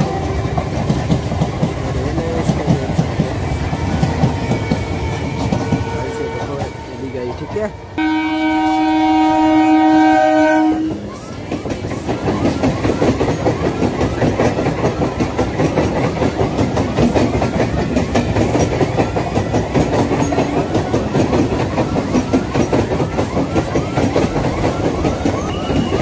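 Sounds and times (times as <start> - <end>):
train wheels clattering over rail joints: 0.0 - 6.9, 10.9 - 26.0
train horn multi-tone blast: 8.0 - 11.0.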